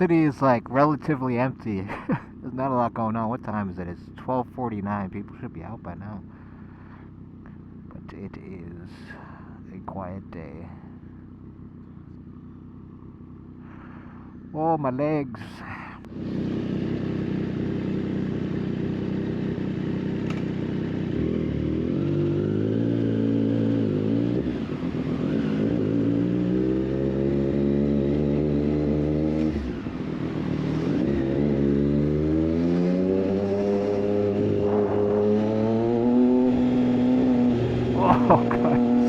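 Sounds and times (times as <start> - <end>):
motorcycle engine shifting gears: 16.0 - 39.0.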